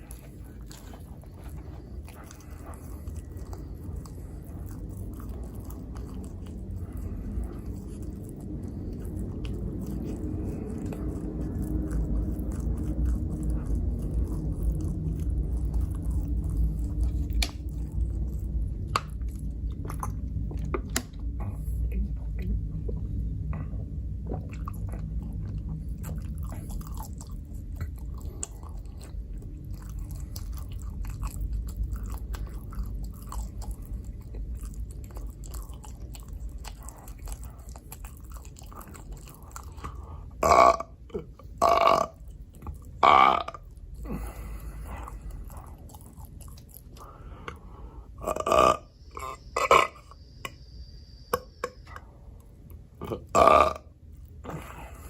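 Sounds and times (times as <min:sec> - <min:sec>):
mouth chewing sounds: 0:00.0 - 0:55.0.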